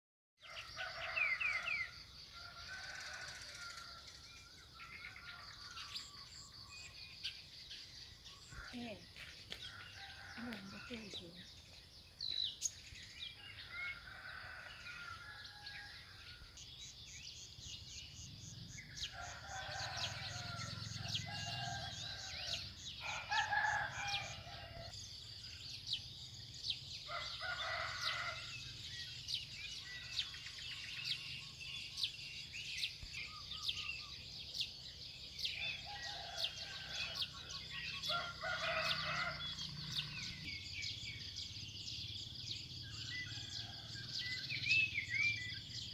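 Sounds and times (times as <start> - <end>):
roosters crowing: 0.5 - 6.5, 9.7 - 11.4, 13.5 - 16.6, 18.8 - 24.9, 27.1 - 28.8, 35.6 - 40.6, 43.1 - 44.5.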